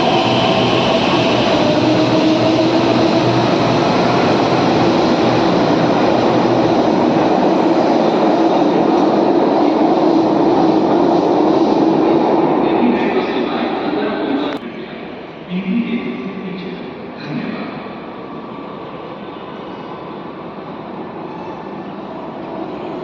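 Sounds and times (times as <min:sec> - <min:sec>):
train running: 0:00.0 - 0:15.4.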